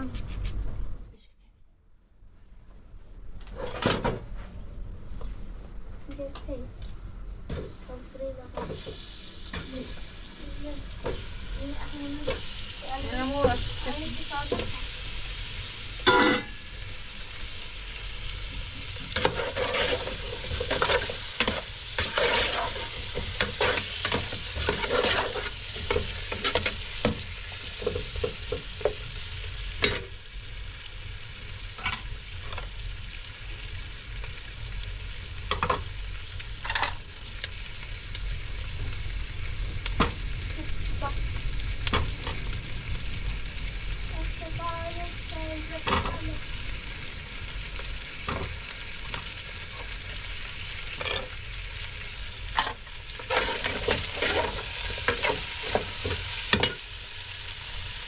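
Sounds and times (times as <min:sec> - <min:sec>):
food sizzling in a pan: 0:05.1 - 0:58.0
utensil scraping a pan: 0:19.0 - 0:26.7, 0:53.2 - 0:56.1.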